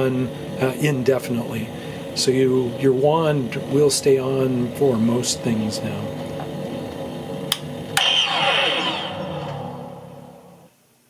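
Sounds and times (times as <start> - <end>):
electronic hum: 0.0 - 10.8
power-down falling tones: 8.0 - 10.7.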